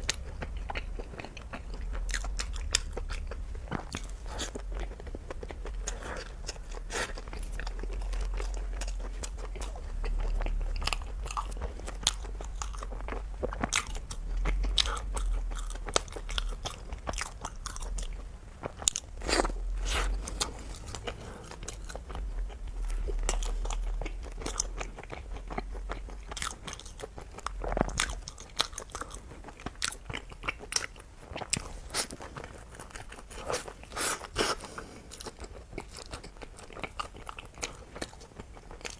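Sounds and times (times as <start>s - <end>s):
low rumble: 0.0s - 29.1s
person chewing crunchy food: 0.0s - 38.9s.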